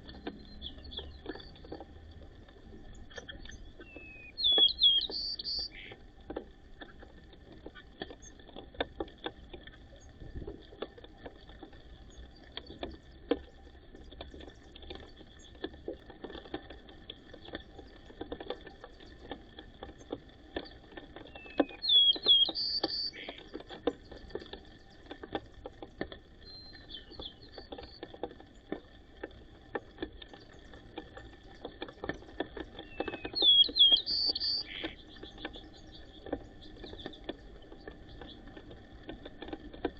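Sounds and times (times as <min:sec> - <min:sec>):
light taps and clicks: 0:00.0 - 0:39.9
sparrow singing whistled song: 0:00.4 - 0:01.6, 0:03.5 - 0:06.0, 0:21.3 - 0:23.4, 0:26.4 - 0:27.6, 0:32.8 - 0:37.0.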